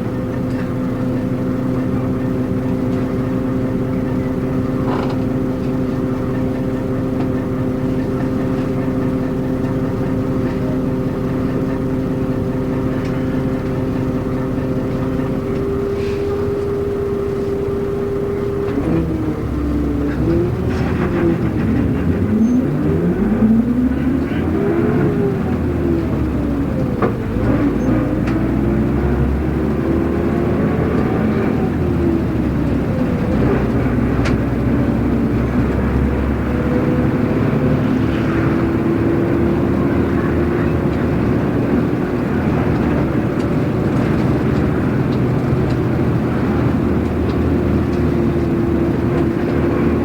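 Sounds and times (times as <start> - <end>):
bus engine changing gears: 0.0 - 50.0
clicks and rattles in cabin: 3.9 - 6.0, 41.8 - 50.0.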